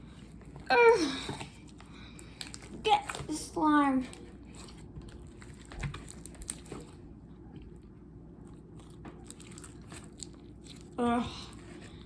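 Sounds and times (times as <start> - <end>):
sticky slime squelches: 0.0 - 12.0.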